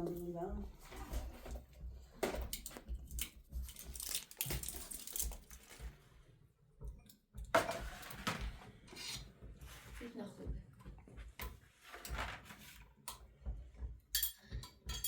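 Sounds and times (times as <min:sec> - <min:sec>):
dishes knocking and clinking: 0:00.0 - 0:05.9, 0:10.8 - 0:15.0.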